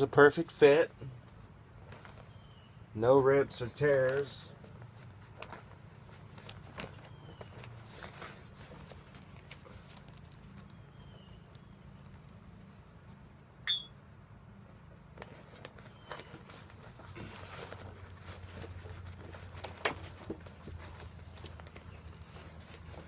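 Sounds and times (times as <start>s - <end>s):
paper rustle: 4.0s - 10.2s, 15.2s - 23.0s
brief squeak: 13.6s - 14.0s.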